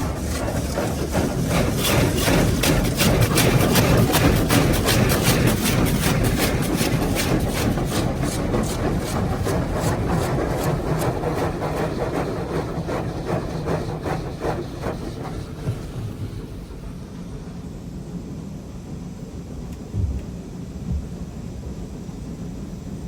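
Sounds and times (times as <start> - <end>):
water jets beating on car body: 0.0 - 16.5.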